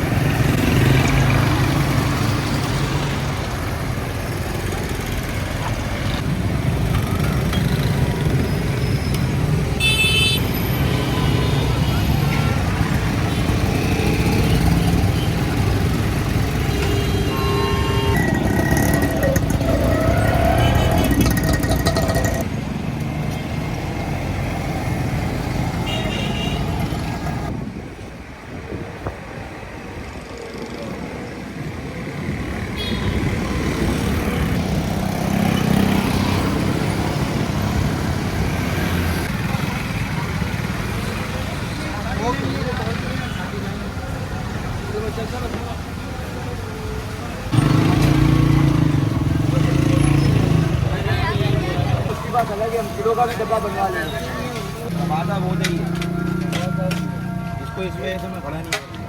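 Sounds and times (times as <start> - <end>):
street traffic engines: 0.0 - 59.0
car horn toots: 16.8 - 21.3.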